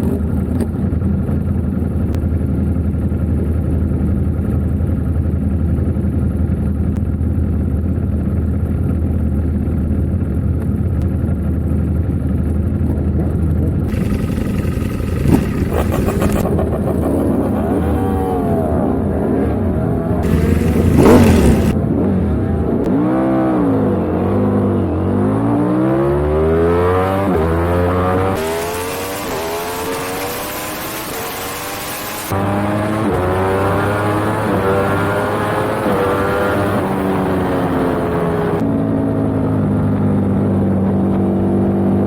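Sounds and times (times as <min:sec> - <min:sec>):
motorcycle engine idling: 0:13.9 - 0:17.8, 0:20.2 - 0:21.8
engines revving: 0:13.9 - 0:21.8, 0:26.9 - 0:38.6.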